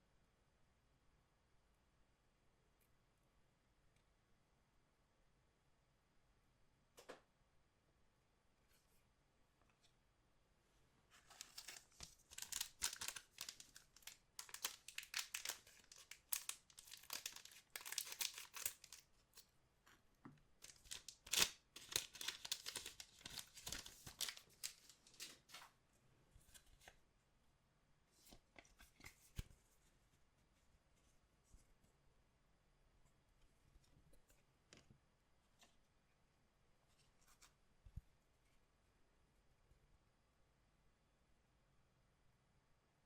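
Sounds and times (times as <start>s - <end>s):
wrapper tearing and crinkling: 11.2s - 19.0s, 20.6s - 25.5s.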